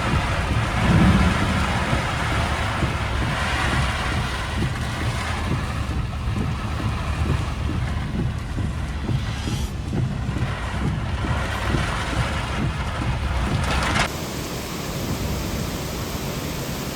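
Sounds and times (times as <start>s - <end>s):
outdoor rushing noise: 0.0s - 16.9s
wind buffeting microphone: 0.0s - 16.9s.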